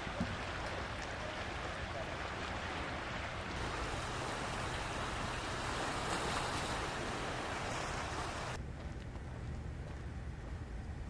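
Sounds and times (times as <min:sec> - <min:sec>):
sea waves on a beach: 0:00.0 - 0:08.6.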